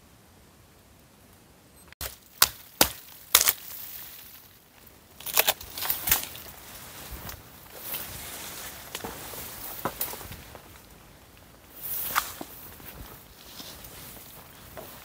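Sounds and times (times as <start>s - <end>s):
dry wood being chopped: 2.0s - 3.7s.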